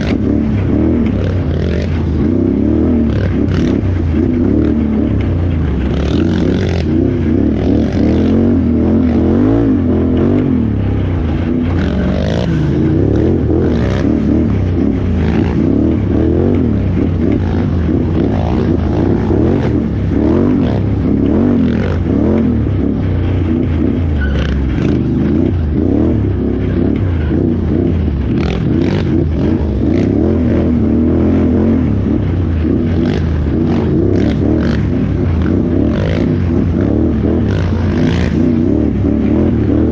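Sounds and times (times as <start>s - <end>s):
atv engine revving: 0.0s - 39.9s
knocks and clatter over rough ground: 0.0s - 39.9s.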